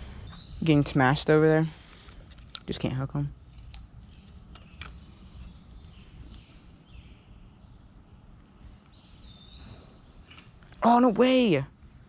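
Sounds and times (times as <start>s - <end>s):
high insect trill: 0.0s - 12.0s.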